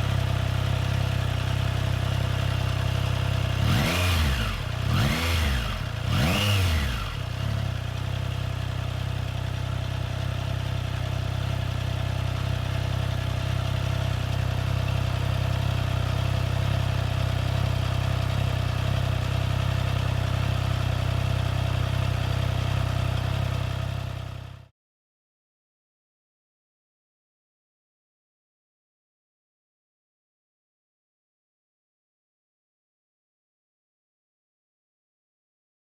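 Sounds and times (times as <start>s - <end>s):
motorcycle engine revving and idling: 0.0s - 24.7s.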